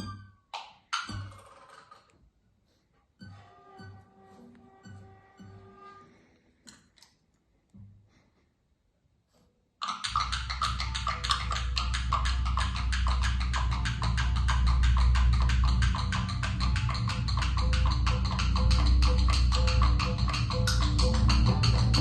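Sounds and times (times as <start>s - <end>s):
loud fast ticking: 9.8s - 22.0s
low steady drone: 10.4s - 22.0s.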